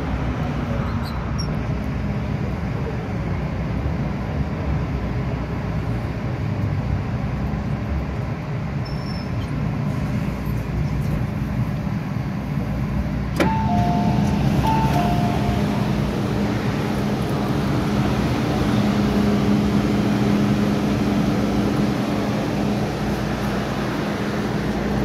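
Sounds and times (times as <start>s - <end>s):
metro train rumbling: 0.0s - 25.0s
two-note alert tone: 13.4s - 15.8s.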